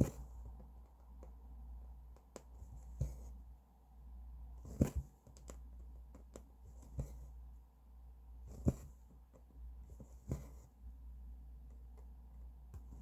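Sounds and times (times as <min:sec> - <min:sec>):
low steady hum: 0:00.0 - 0:13.0
needle tapping through fabric: 0:02.1 - 0:03.4, 0:04.6 - 0:07.3, 0:08.5 - 0:10.7.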